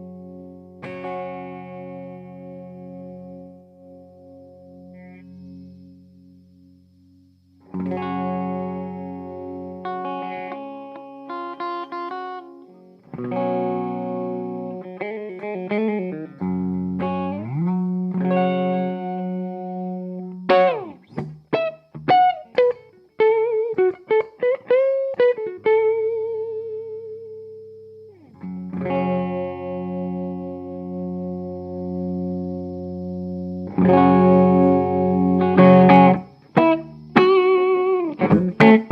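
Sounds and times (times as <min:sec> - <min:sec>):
electric guitar playing: 0:00.0 - 0:38.9.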